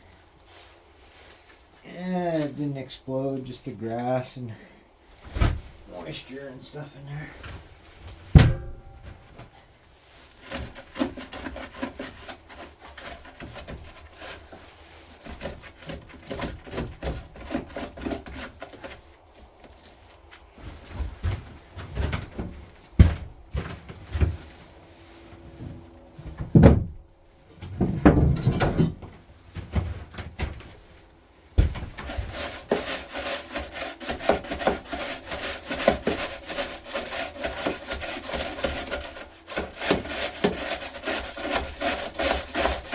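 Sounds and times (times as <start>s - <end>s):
hand tool knocks and clunks: 7.4s - 9.6s, 21.0s - 24.4s, 31.6s - 32.1s
fast scraping: 31.7s - 42.9s.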